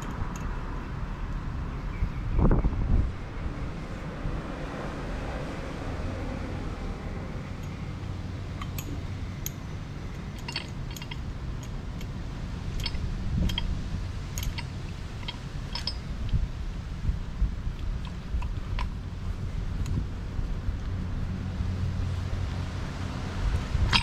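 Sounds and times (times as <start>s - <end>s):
steady low hum: 0.0s - 24.0s
tools and metal parts clinking: 8.6s - 12.1s, 12.7s - 13.7s, 14.3s - 16.4s.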